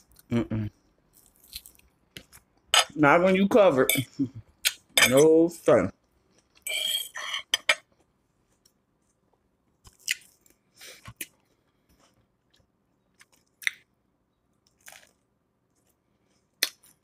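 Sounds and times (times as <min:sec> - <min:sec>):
person chewing crunchy food: 0:00.0 - 0:02.7, 0:09.8 - 0:13.9, 0:14.6 - 0:17.0.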